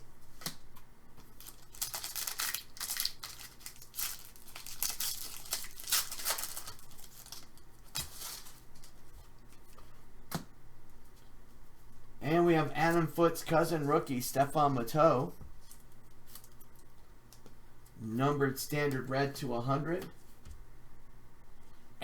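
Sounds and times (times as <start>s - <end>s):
wrapper tearing and crinkling: 1.4s - 8.9s
cards clicking and tapping: 10.3s - 10.5s.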